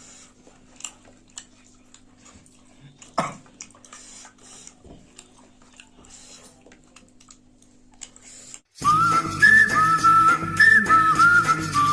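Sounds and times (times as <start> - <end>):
chewing with mouth clicks: 0.0 - 8.7.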